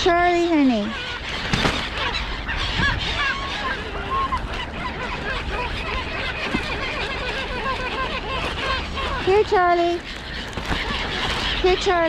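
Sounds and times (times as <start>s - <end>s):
flock of birds calling: 0.0s - 12.0s.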